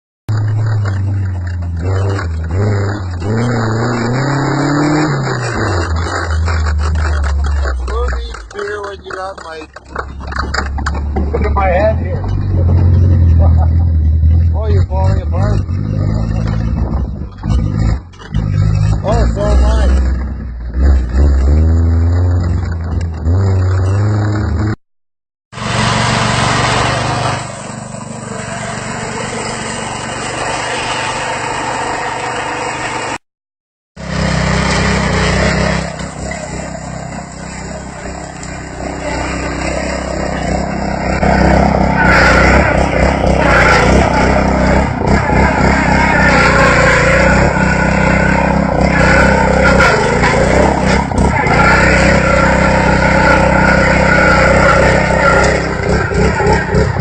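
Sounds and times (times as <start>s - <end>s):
lawnmower engine running: 5.6s - 14.4s, 25.5s - 33.2s, 34.0s - 57.0s.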